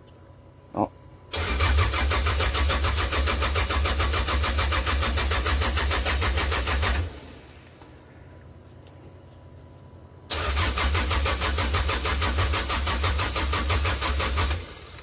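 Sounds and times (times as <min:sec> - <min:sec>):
car engine cranking: 0:01.3 - 0:07.4, 0:10.3 - 0:15.0.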